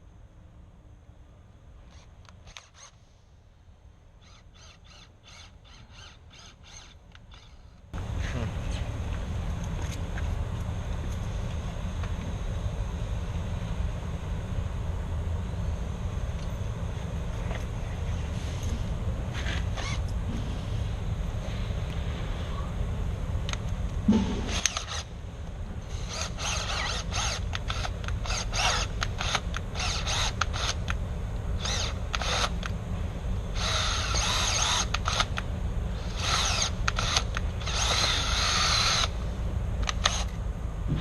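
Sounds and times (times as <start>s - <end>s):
steady low hum: 0.0s - 41.0s
tool clicks and clatter: 1.9s - 3.0s, 23.5s - 25.1s, 25.9s - 31.0s, 31.6s - 32.8s, 33.6s - 35.5s, 36.2s - 39.1s, 39.8s - 40.4s
drill-like rasping bursts: 2.0s - 3.0s, 4.2s - 7.8s, 19.4s - 20.0s, 24.5s - 25.1s, 25.9s - 31.0s, 31.6s - 32.7s, 33.5s - 35.4s, 36.0s - 39.2s, 39.8s - 40.4s.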